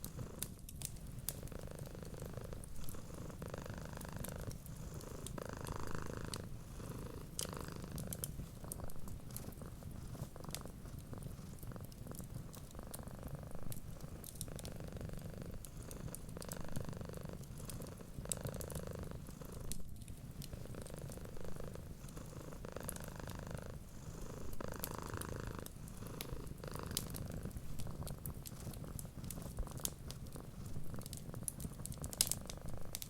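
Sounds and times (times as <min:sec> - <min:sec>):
wood fire crackling: 0:00.0 - 0:03.4, 0:07.2 - 0:16.6, 0:24.5 - 0:33.0
cat purring: 0:00.0 - 0:33.0.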